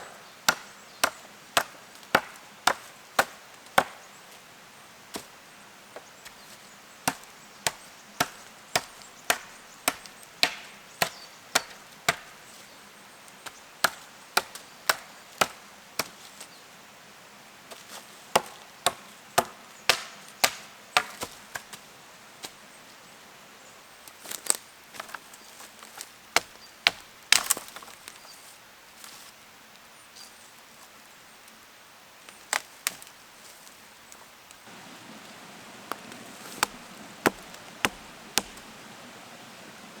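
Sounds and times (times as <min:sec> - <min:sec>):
wood being chopped: 0:00.0 - 0:04.0, 0:07.0 - 0:12.4, 0:13.4 - 0:16.2, 0:18.3 - 0:21.8, 0:26.4 - 0:27.9, 0:34.7 - 0:38.8.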